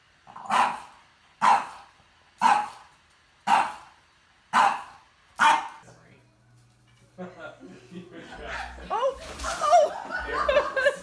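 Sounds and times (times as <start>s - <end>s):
dog barking: 0.4s - 2.8s, 3.5s - 3.9s, 4.5s - 5.8s.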